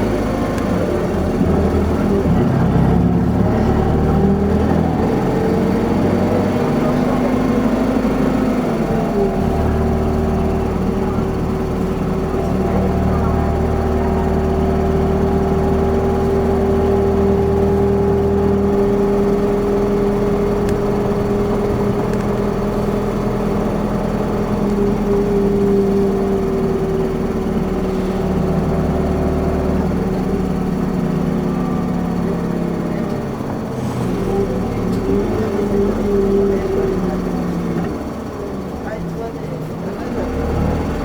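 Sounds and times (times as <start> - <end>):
bus diesel engine whine: 0.0 - 41.0
deep rumble: 8.6 - 31.8.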